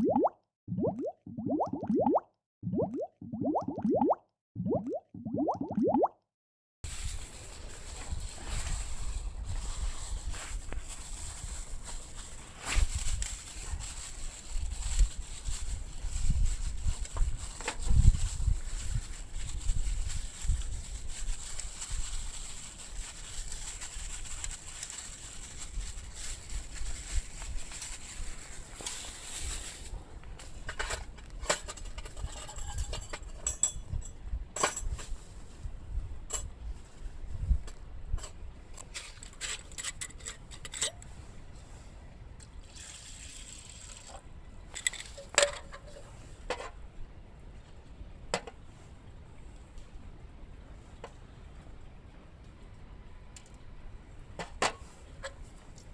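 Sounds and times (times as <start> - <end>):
liquid pouring: 0.0 - 6.1
wind rumbling on microphone: 6.9 - 24.7, 31.3 - 38.8.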